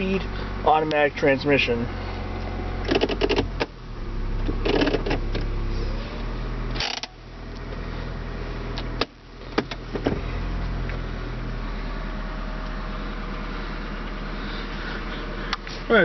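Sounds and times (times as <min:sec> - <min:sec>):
car engine idling: 0:00.0 - 0:16.0
sharp clicks and knocks: 0:02.8 - 0:03.8, 0:04.4 - 0:05.5.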